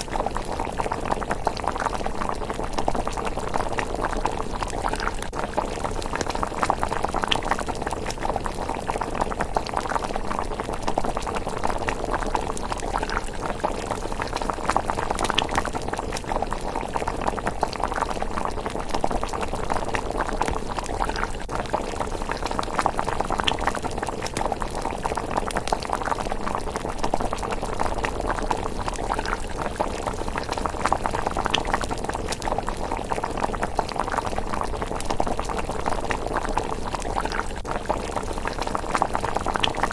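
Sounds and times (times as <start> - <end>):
porridge bubbling in a pot: 0.0 - 39.9.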